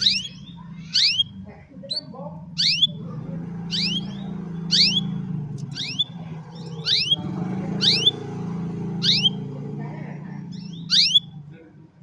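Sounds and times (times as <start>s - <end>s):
canary swooping call: 6.8s - 8.2s, 9.0s - 9.4s, 10.9s - 11.3s.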